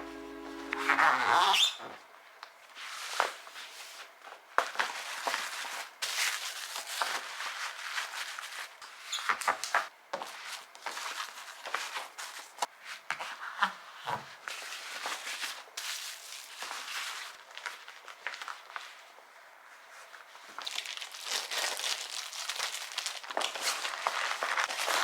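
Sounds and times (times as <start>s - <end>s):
plastic packaging crinkling: 20.6s - 25.0s.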